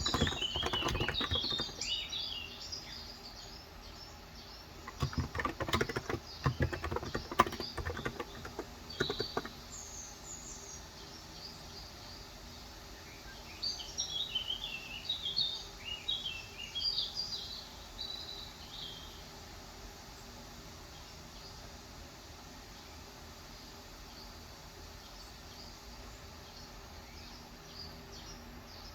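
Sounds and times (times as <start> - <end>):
keyboard typing: 0.0 - 2.0, 4.9 - 9.6
small birds chirping: 0.0 - 19.3.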